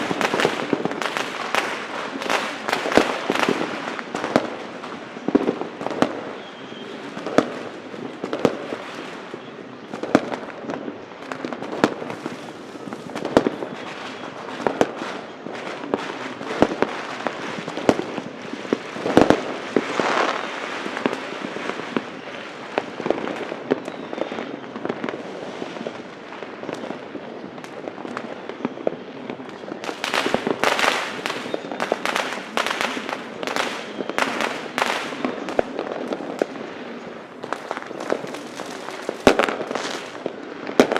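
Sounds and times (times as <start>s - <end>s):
firework bangs: 0.0s - 6.4s, 9.9s - 21.9s, 29.8s - 40.9s
firecrackers crackling: 0.0s - 40.9s.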